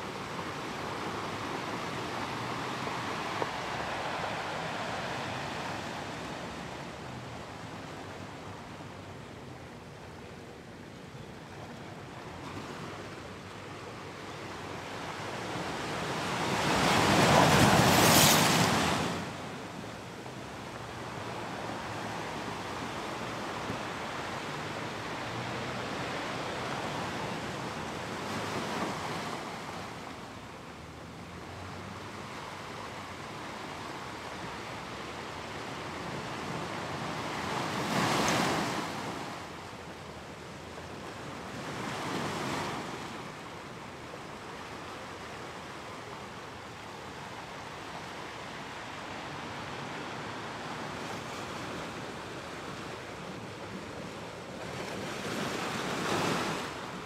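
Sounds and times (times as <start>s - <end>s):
ocean waves washing on shore: 0.0s - 57.0s.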